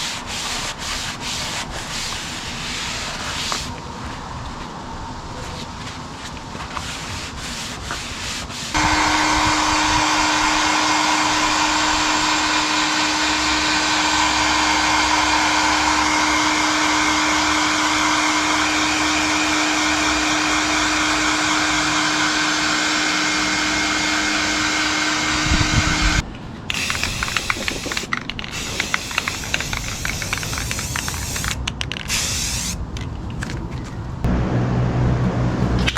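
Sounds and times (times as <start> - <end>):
scratchy rubbing: 0.0 - 3.7
electric power tool grinding: 8.7 - 31.6.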